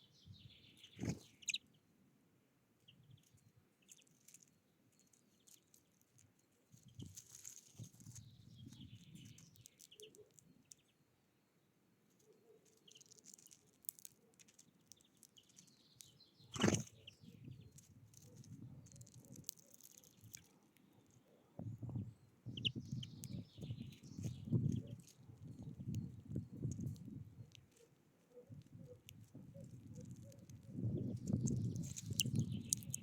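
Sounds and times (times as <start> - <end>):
small birds chirping: 0.0 - 2.0, 2.8 - 33.0
wings fluttering: 0.9 - 1.6, 5.1 - 10.3, 16.5 - 20.5.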